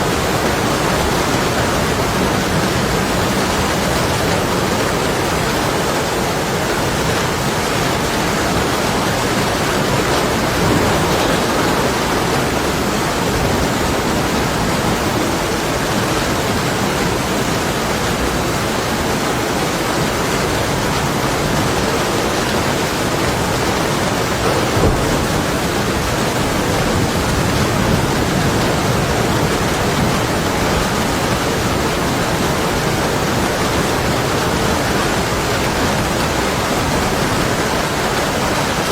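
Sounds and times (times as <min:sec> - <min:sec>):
heavy rain on window glass: 0:00.0 - 0:38.9
distant thunder rumbling: 0:08.5 - 0:16.6, 0:23.3 - 0:34.9.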